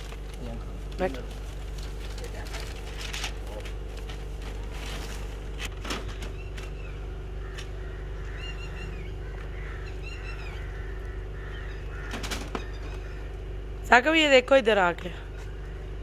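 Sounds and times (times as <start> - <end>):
rustling: 0.0 - 6.3
steady low hum: 0.0 - 16.0
bird chirping: 8.2 - 13.4.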